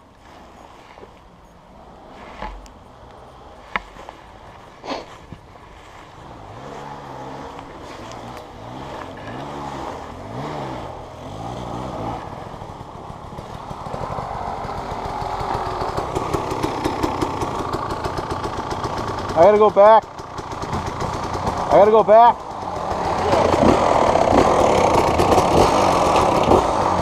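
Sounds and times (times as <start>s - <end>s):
small engine revving: 1.7s - 27.0s
engine with fast pulsing beat: 12.5s - 27.0s.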